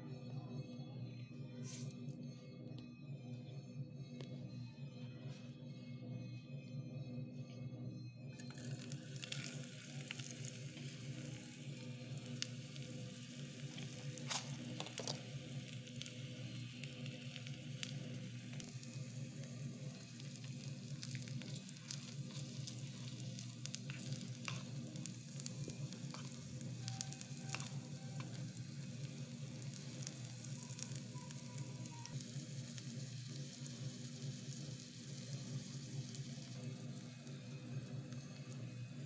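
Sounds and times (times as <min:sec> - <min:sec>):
steady low hum: 0:00.0 - 0:39.0
onions sizzling in hot oil: 0:08.4 - 0:39.0
spoon stirring in a pan: 0:13.6 - 0:33.0.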